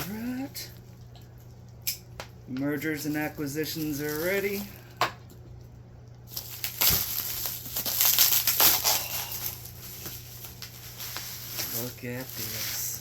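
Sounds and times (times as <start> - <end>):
plastic packaging crinkling: 3.0 - 5.0, 6.2 - 13.0.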